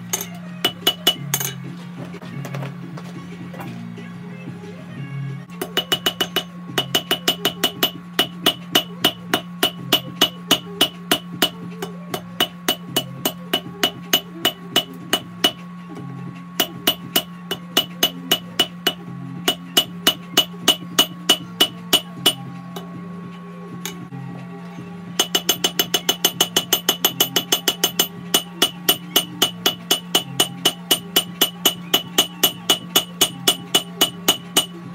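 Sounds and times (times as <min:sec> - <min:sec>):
hammer striking steel on anvil: 0:00.0 - 0:01.6, 0:05.6 - 0:15.6, 0:16.6 - 0:22.9, 0:23.8 - 0:24.0, 0:25.2 - 0:34.9
gas forge humming: 0:00.0 - 0:34.9.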